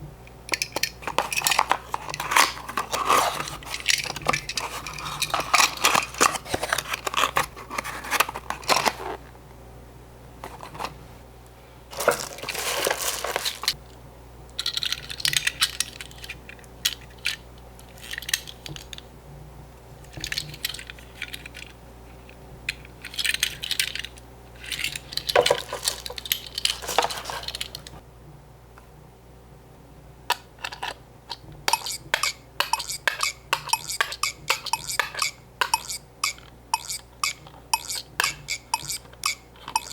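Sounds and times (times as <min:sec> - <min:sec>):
metal toy cars clicking: 0:00.5 - 0:07.5, 0:14.6 - 0:19.0, 0:22.7 - 0:28.0, 0:31.7 - 0:39.9
card scraping: 0:01.0 - 0:09.3, 0:11.9 - 0:13.8.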